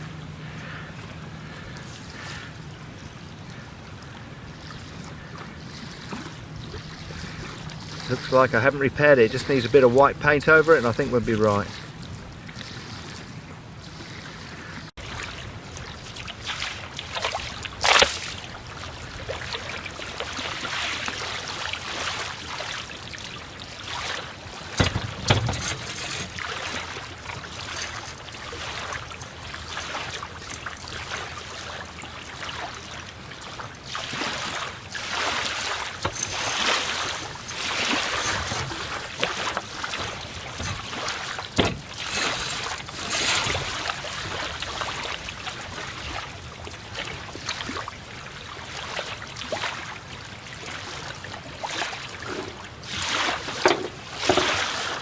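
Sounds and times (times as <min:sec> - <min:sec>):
water lapping: 0:00.0 - 0:55.0
wind: 0:00.0 - 0:55.0
sharp knocks: 0:24.8 - 0:26.6, 0:41.6 - 0:42.6, 0:53.5 - 0:54.6.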